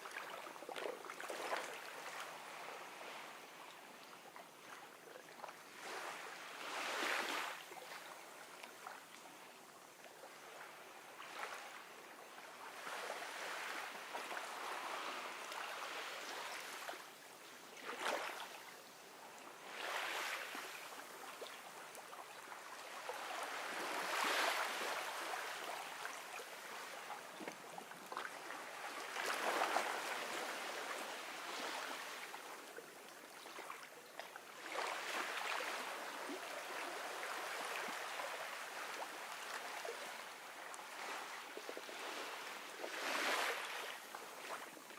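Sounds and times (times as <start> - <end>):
ocean waves washing onto beach: 10.4 - 17.2, 17.9 - 32.7.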